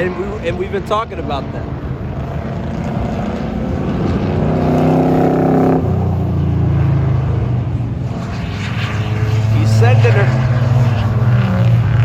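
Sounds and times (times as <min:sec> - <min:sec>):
race car engine accelerating: 0:02.1 - 0:07.4, 0:08.1 - 0:12.0.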